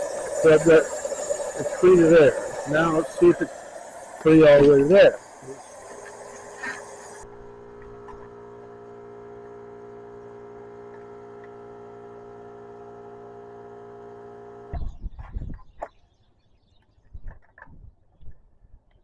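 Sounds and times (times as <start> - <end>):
air compressor humming: 0.0 - 14.8.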